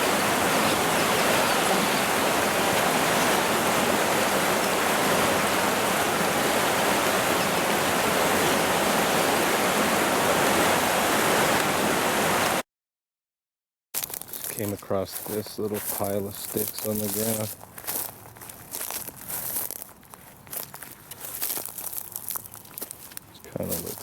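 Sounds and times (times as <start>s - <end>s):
river water rushing: 0.0s - 12.6s.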